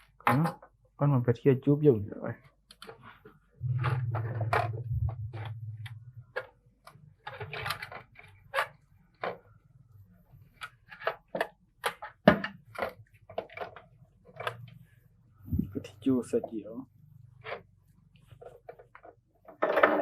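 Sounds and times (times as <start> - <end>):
low hum: 3.6 - 6.9.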